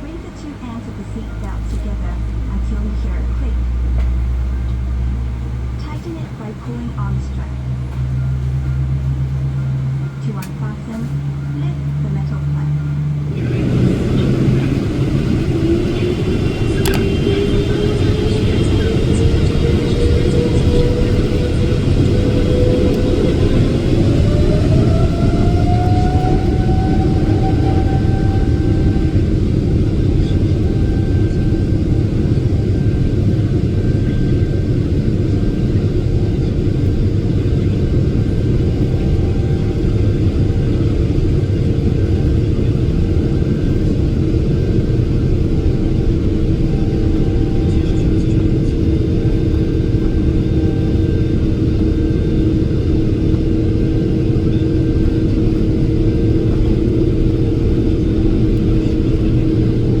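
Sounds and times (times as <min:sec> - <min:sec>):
aircraft cabin engine rumble: 0:00.0 - 1:00.0.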